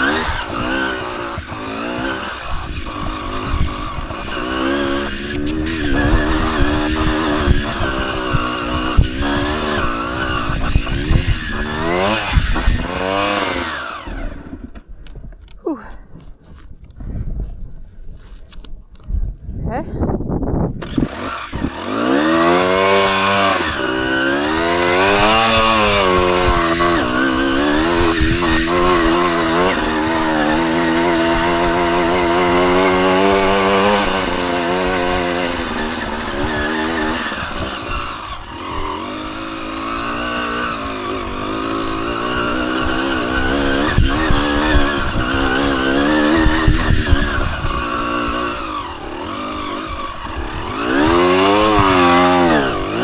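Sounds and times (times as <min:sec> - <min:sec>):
dirt bike engine revving: 0:00.0 - 0:14.9, 0:20.8 - 0:53.0
wind rumble: 0:00.0 - 0:15.5, 0:16.1 - 0:53.0.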